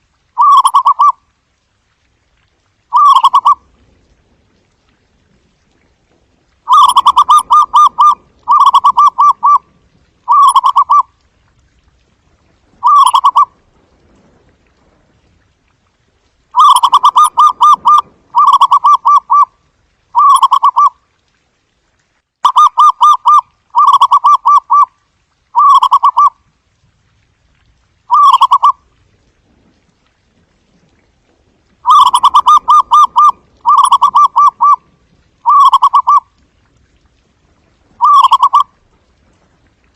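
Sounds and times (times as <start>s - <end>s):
dove cooing: 0.4s - 1.1s, 2.9s - 3.6s, 6.7s - 9.7s, 10.3s - 11.1s, 12.8s - 13.5s, 16.6s - 19.5s, 20.2s - 20.9s, 22.5s - 24.9s, 25.6s - 26.3s, 28.1s - 28.8s, 31.8s - 34.8s, 35.4s - 36.2s, 38.0s - 38.7s.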